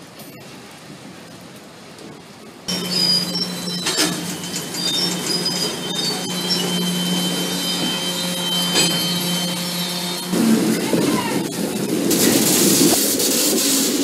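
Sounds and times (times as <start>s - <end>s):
freight train wheels rumbling: 0.0s - 14.0s
high wheel squeal: 2.7s - 11.7s.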